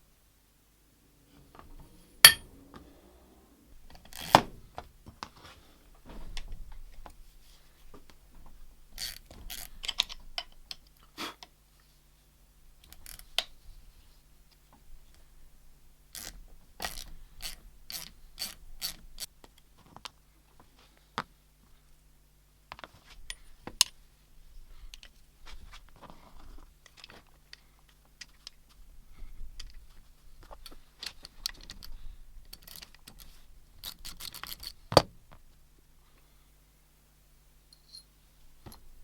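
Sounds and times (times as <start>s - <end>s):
metal tools clicking and clanking: 2.2s - 2.5s, 37.7s - 38.1s
sharp metal knock: 2.3s - 2.5s.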